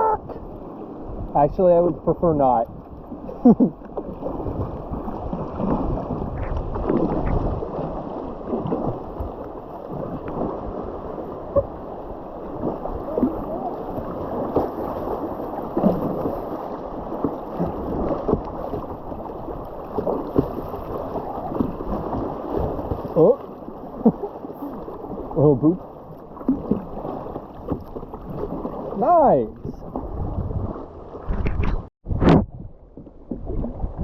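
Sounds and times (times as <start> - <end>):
wind buffeting microphone: 4.2 - 11.9, 29.4 - 34.0
river water rushing: 6.9 - 25.4.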